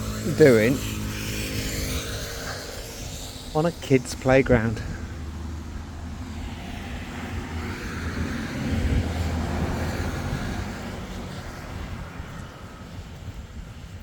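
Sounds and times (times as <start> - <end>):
engine drone passing by: 0.0 - 14.0.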